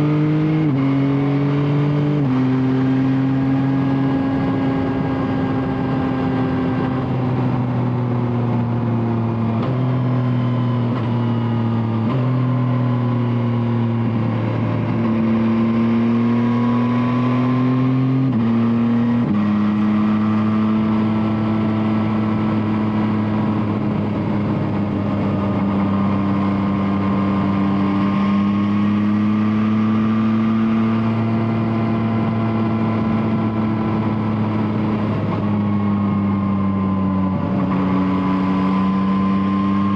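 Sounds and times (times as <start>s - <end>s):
motorcycle engine changing gears: 0.0s - 39.9s.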